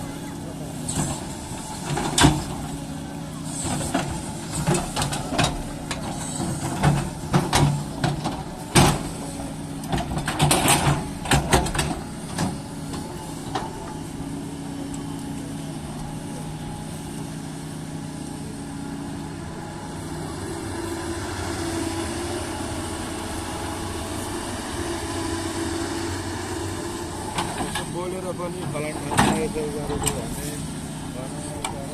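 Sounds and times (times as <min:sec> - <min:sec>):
excavator diesel engine running: 0:00.0 - 0:31.9
sharp knocks and clanks: 0:28.6 - 0:30.2.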